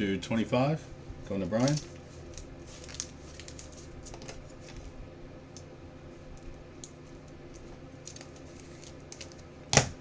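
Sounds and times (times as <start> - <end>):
low steady hum: 0.0 - 10.0
cards clicking and rustling: 1.5 - 4.8.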